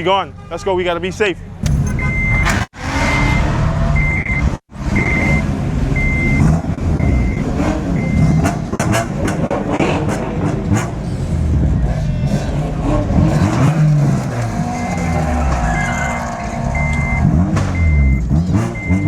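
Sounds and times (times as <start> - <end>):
engines rumbling: 0.0 - 19.0
reversing alarm beeping: 1.6 - 8.4, 16.0 - 19.0.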